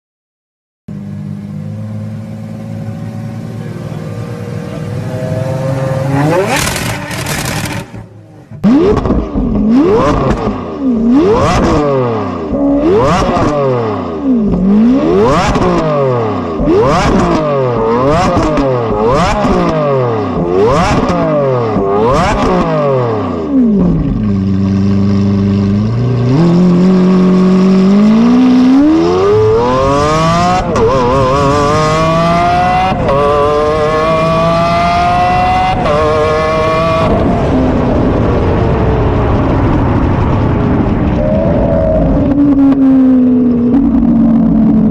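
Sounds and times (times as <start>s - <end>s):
car engine idling: 0.9s - 8.7s
car accelerating with gear shifts: 0.9s - 40.4s
car engine revving: 0.9s - 44.9s.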